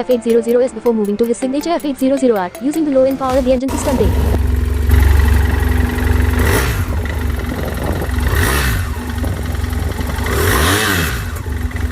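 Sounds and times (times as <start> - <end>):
motorcycle engine idling and revving: 3.2 - 11.9.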